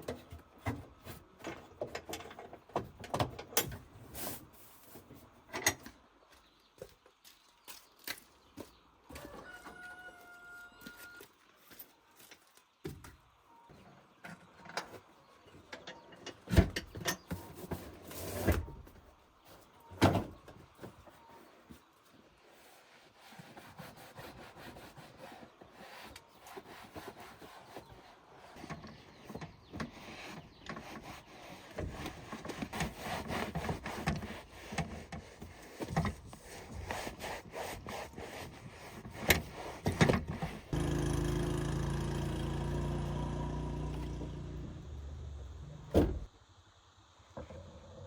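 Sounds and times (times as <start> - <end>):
scraping and rubbing: 22.4 - 40.8
motor running: 40.8 - 45.8.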